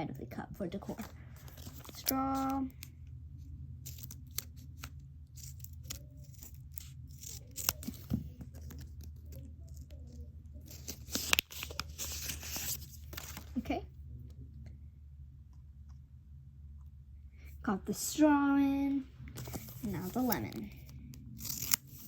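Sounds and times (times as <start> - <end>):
low hum: 0.0 - 22.0
plastic packaging crinkling: 0.9 - 2.9, 3.9 - 13.6, 19.4 - 22.0.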